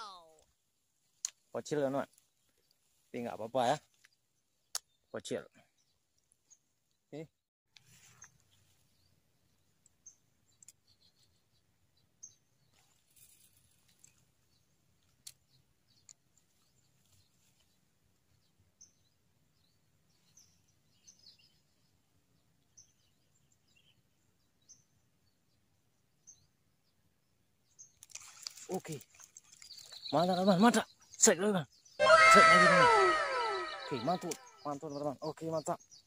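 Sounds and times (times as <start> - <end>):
birds chirping faintly: 0.0 - 36.0.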